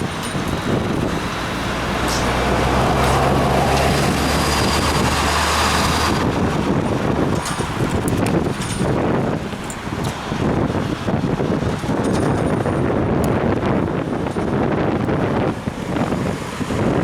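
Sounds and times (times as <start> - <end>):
motor vehicle passing: 0.0 - 12.9
wind noise on microphone: 0.0 - 17.0.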